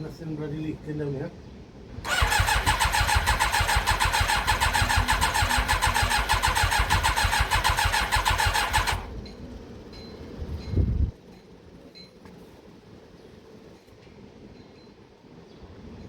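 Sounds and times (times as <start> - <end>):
short low engine burst: 2.0 - 9.3
motorcycle engine cranking: 2.1 - 9.2.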